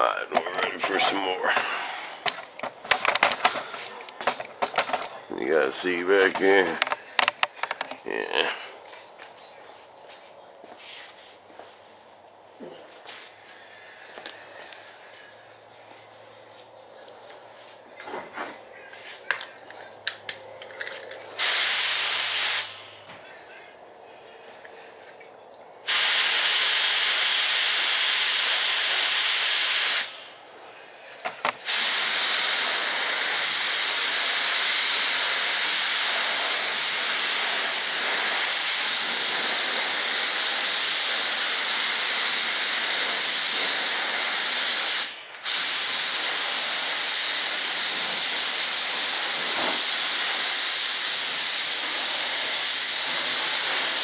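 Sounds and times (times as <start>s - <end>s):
paint spray gun hissing: 21.4s - 22.8s, 25.8s - 30.2s, 31.6s - 54.0s.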